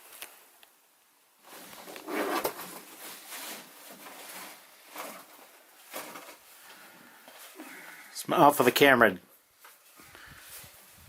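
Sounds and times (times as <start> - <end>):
rustling and handling noises: 1.4 - 8.0, 9.3 - 11.0.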